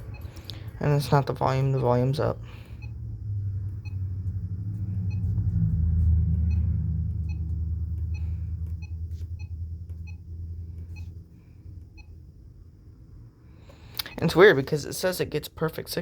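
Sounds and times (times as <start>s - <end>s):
radio distorted rumble: 3.4s - 11.0s.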